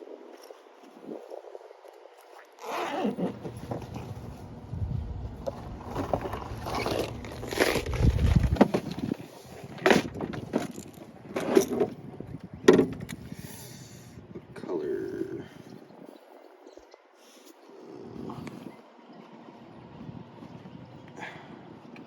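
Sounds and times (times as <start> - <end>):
scraping and rustling: 2.7 - 4.6, 5.4 - 12.0.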